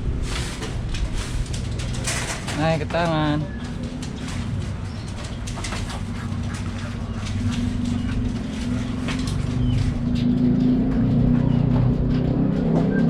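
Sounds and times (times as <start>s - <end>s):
steady low hum: 0.0s - 13.0s
budgerigars chirping and chattering: 2.6s - 10.4s.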